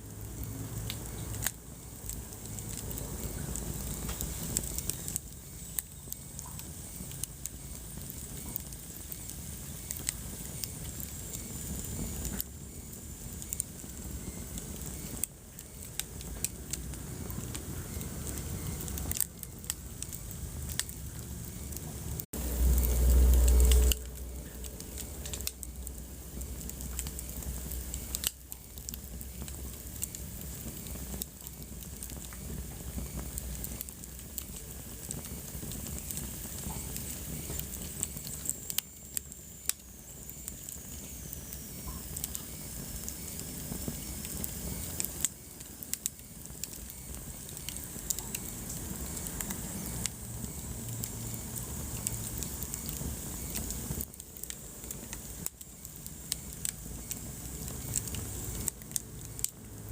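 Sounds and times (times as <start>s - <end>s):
fireplace fire crackling: 0.0s - 59.9s
low hiss of fire: 0.0s - 59.9s
loud low rumble: 21.2s - 26.4s.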